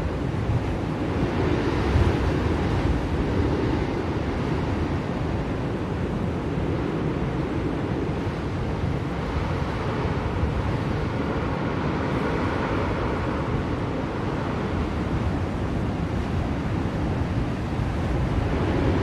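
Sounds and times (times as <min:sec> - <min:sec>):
blizzard wind blowing: 0:00.0 - 0:19.0.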